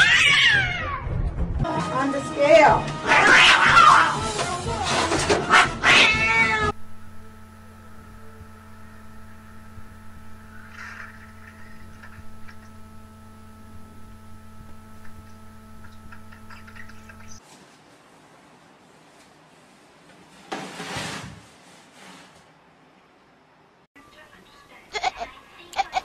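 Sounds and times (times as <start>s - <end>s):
cat meowing loudly: 0.0s - 1.1s, 3.0s - 4.2s, 5.5s - 6.8s
steady low hum: 6.6s - 17.4s.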